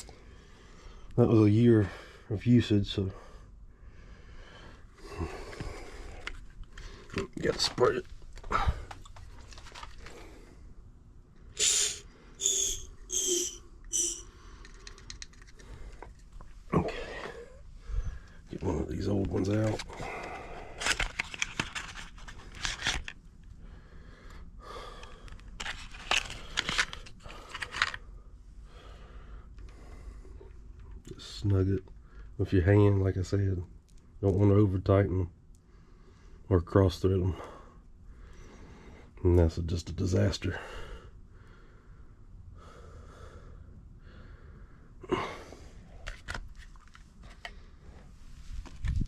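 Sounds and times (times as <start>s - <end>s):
person breathing: 0.0s - 1.2s, 3.1s - 7.2s, 11.6s - 16.2s, 16.8s - 18.5s, 19.9s - 21.0s, 23.6s - 25.4s, 28.6s - 30.6s, 40.6s - 46.0s
tools clicking and scraping: 11.6s - 16.3s.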